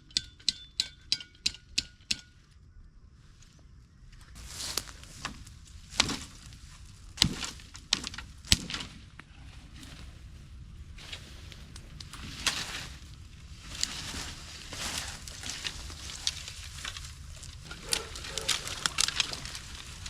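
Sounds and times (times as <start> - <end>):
steady low rumble: 2.6 - 20.0
wood crackling and snapping: 4.4 - 9.4, 11.4 - 20.0.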